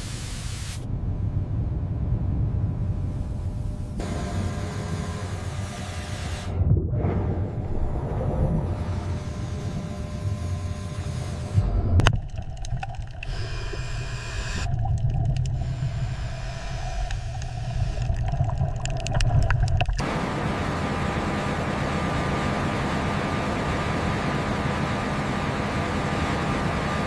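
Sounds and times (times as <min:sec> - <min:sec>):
steady hiss: 0:00.0 - 0:00.9
faint hum: 0:00.0 - 0:27.0
deep low rumble: 0:00.8 - 0:04.2, 0:05.2 - 0:10.2, 0:11.5 - 0:20.1
clicks and creaks: 0:14.4 - 0:20.0.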